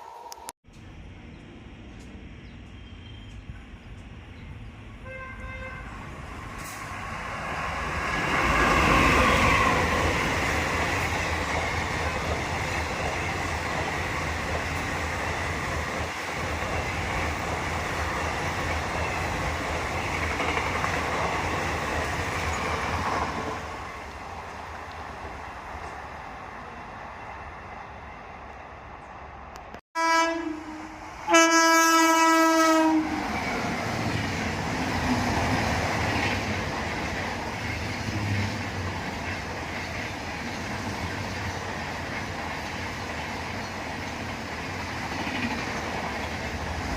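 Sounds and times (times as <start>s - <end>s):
train passing at speed: 0.0s - 46.9s
train horn blasts: 5.0s - 6.0s, 30.0s - 33.6s.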